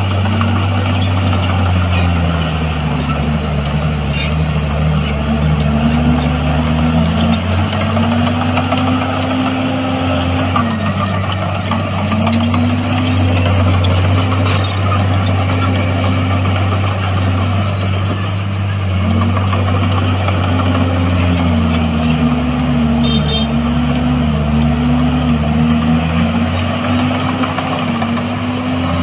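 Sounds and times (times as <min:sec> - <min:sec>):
heavy machinery diesel engine: 0:00.0 - 0:29.0
second engine: 0:00.0 - 0:29.0.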